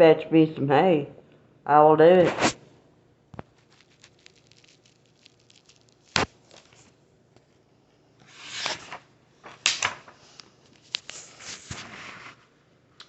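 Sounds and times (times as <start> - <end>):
book pages turning: 3.4 - 7.0, 8.2 - 12.4.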